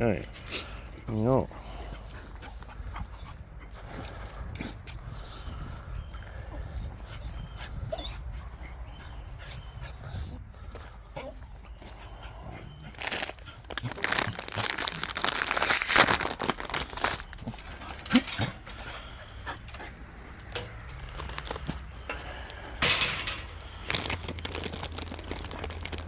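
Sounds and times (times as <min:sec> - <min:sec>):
treat packet crinkling: 0:12.9 - 0:18.1, 0:20.9 - 0:26.0.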